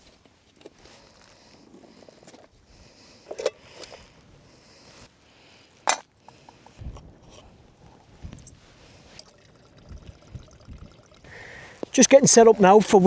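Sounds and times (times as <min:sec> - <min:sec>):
sharp metal clank: 0:06.8 - 0:09.7
metal pots clinking and knocking: 0:06.8 - 0:11.9
dull thud: 0:06.8 - 0:12.0.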